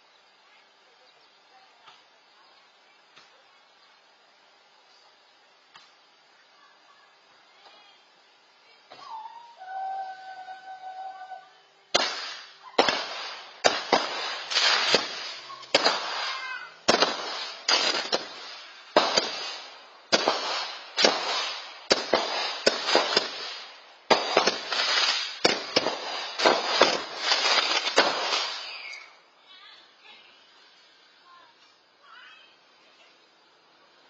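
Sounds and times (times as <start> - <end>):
fireworks bangs with crackling: 11.9 - 29.2.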